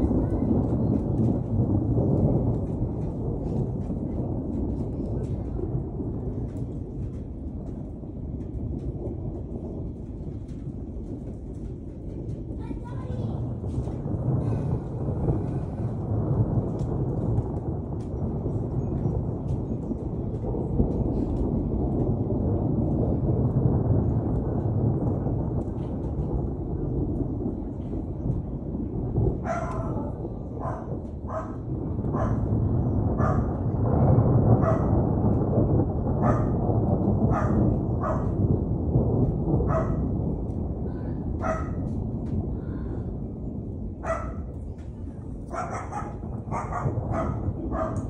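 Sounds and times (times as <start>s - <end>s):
faint rain ticks: 0.0s - 48.0s
thunder rumbling: 0.0s - 48.0s
dog barking: 29.4s - 32.4s, 33.2s - 33.5s, 34.6s - 34.9s, 36.2s - 36.6s, 37.3s - 38.4s, 39.7s - 40.0s, 41.4s - 41.8s, 44.0s - 44.4s, 45.5s - 48.0s.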